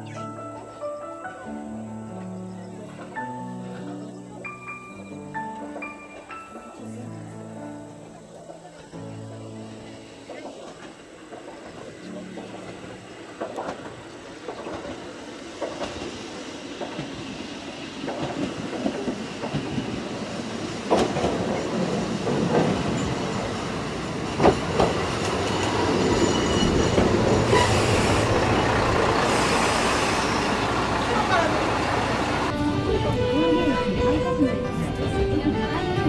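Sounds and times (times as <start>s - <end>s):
diesel railcar passing: 0.0s - 36.0s
wheels clicking over rail joints: 9.8s - 17.2s.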